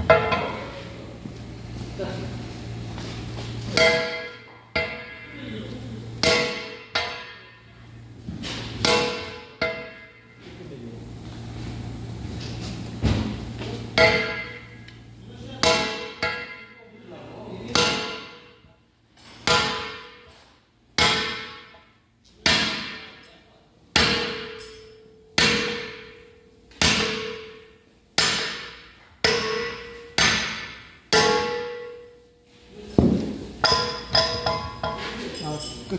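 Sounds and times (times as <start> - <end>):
hammer striking steel: 3.7 - 5.3, 6.2 - 7.7, 8.6 - 10.4, 14.0 - 14.8, 15.6 - 16.8, 17.7 - 18.6, 19.4 - 20.4, 21.0 - 21.8, 22.4 - 23.3, 23.9 - 32.2, 33.0 - 35.8.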